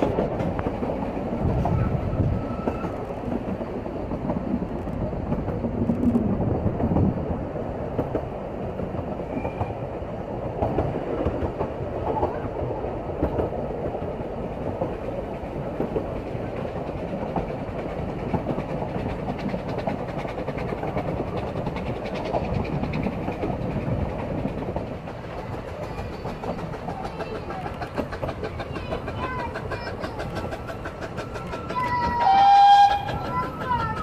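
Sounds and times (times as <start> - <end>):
train rumble and wheel clatter: 0.0 - 34.0.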